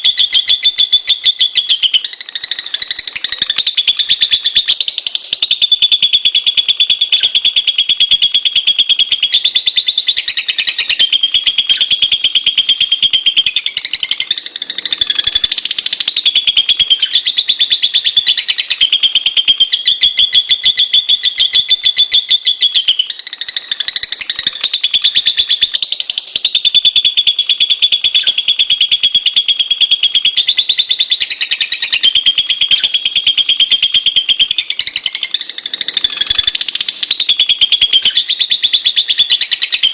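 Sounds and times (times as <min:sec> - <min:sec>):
lovebird chattering shrill chirps: 0:00.0 - 0:39.9.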